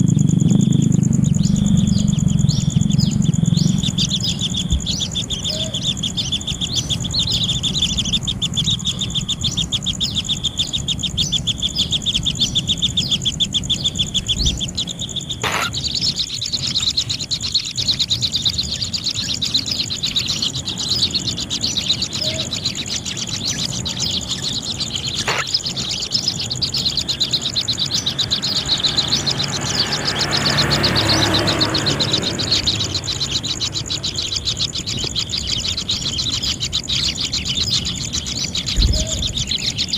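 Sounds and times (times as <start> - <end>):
nestlings chirping rapidly: 0.0 - 39.9.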